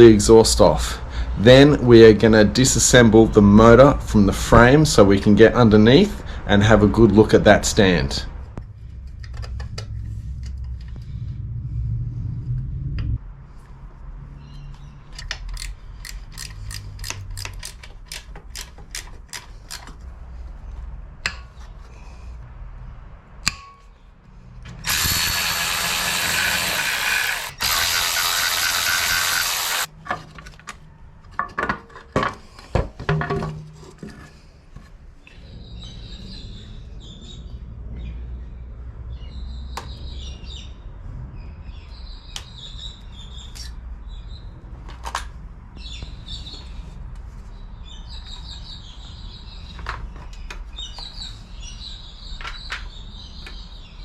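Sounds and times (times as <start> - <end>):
ratchet wrench clicking: 15.2 - 19.9, 24.8 - 29.9
sharp metallic knocks: 23.4 - 24.0
power tool running loudly: 24.8 - 29.9.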